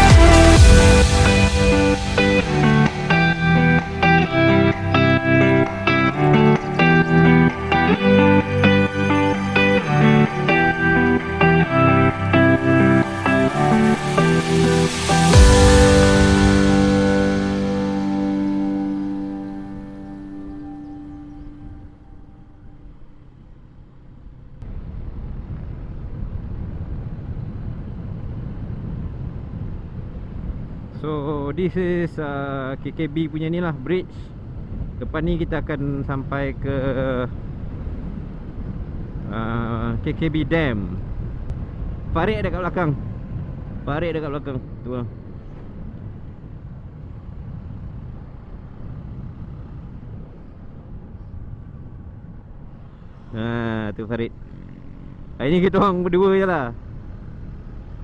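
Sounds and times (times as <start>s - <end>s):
wind rushing: 0.0s - 20.5s
motorcycle engine rumble: 0.0s - 58.0s
wind noise: 34.3s - 52.6s.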